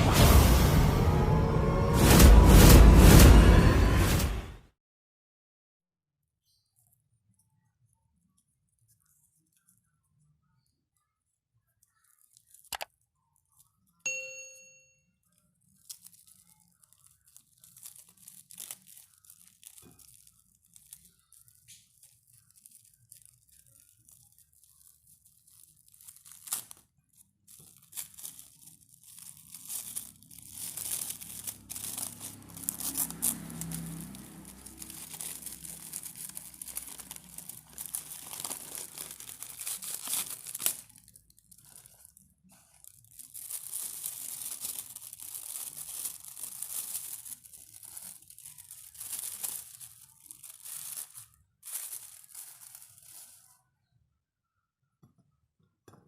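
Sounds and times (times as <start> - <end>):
wrappers crinkling and tearing: 11.7 - 14.0, 15.2 - 53.6.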